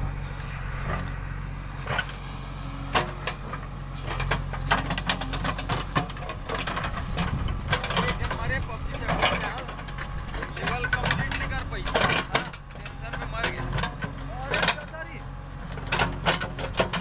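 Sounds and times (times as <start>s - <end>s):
diesel engine running: 0.0s - 17.0s
sharp clicks and knocks: 2.9s - 15.0s, 15.7s - 17.0s.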